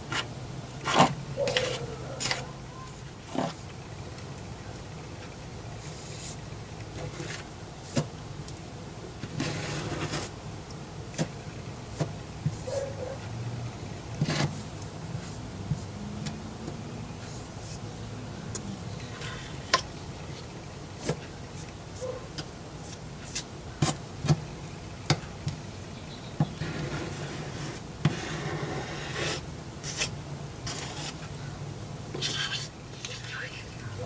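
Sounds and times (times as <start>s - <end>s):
putty knife scraping compound: 0.1s - 2.4s, 9.3s - 10.3s, 14.2s - 14.7s, 26.6s - 31.2s, 32.2s - 33.2s.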